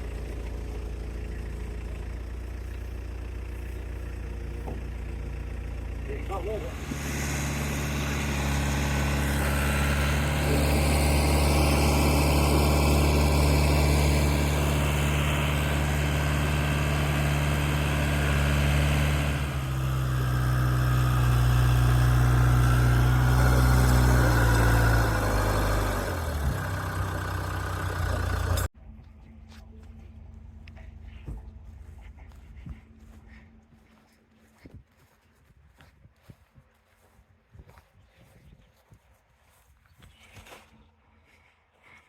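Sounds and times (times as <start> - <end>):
vehicle engine running: 0.0 - 35.2.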